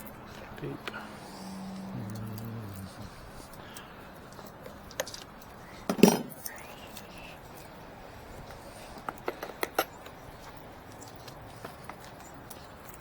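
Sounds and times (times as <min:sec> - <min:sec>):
metal parts clinking: 0:05.9 - 0:06.6.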